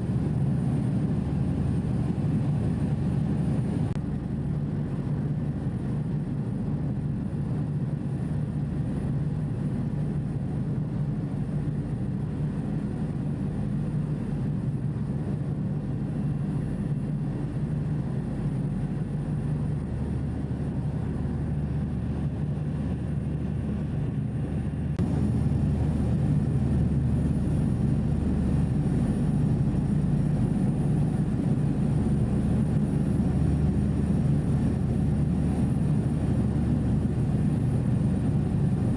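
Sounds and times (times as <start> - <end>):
ferry engines droning: 21.2 - 34.7.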